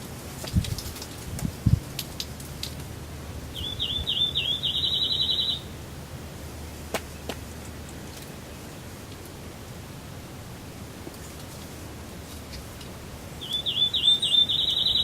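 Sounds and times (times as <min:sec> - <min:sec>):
songbird trilling: 0:03.5 - 0:05.8, 0:13.4 - 0:15.0.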